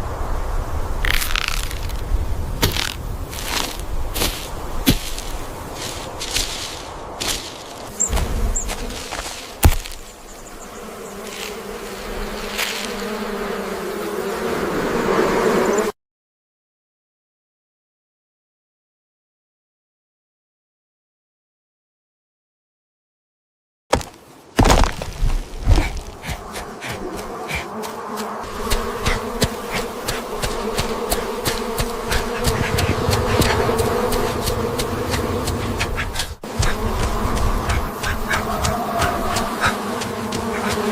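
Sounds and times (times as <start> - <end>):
insect-like buzzing drone: 0.2 - 16.0, 25.1 - 40.9.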